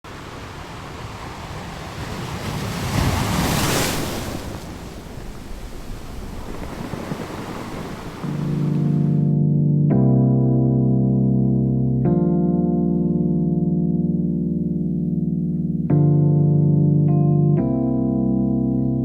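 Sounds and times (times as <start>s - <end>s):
wind blowing across microphone: 0.1s - 9.2s.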